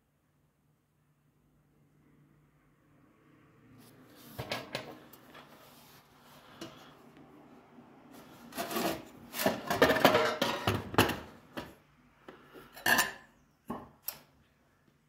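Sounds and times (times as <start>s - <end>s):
light metal clattering and scraping: 4.2s - 7.0s, 8.1s - 11.8s.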